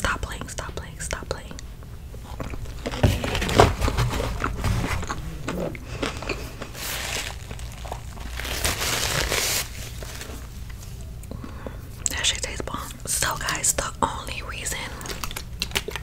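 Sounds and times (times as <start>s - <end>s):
chewing and crunching food: 2.2s - 11.6s, 14.9s - 16.0s
paper napkin rustling: 2.7s - 11.0s.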